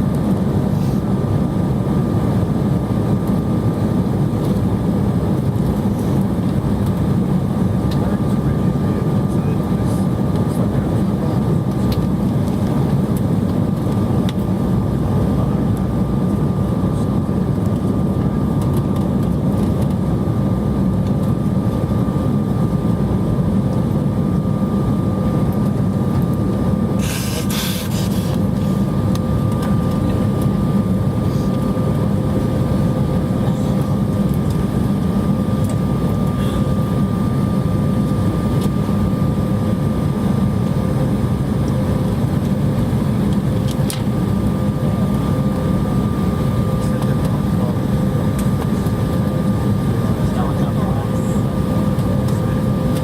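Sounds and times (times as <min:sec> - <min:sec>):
airplane cabin low rumble: 0:00.0 - 0:53.0
brief hiss: 0:27.0 - 0:28.4.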